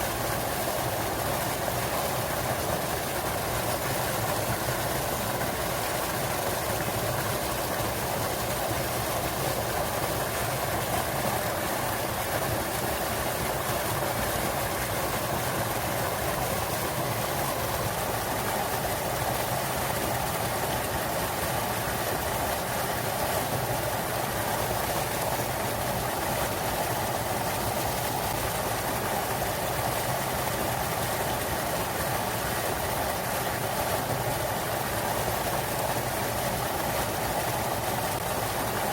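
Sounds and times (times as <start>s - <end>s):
small waterfall splashing: 0.0s - 38.9s.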